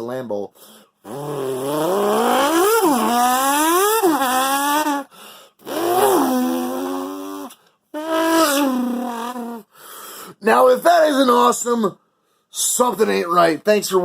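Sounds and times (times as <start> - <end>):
man imitating engine revving: 1.0 - 9.6.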